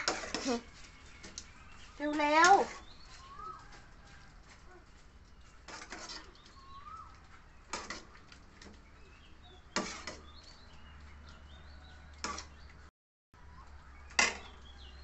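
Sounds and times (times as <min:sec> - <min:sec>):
rustle or scrape: 0:00.0 - 0:12.9
faint bird calls: 0:06.6 - 0:07.2.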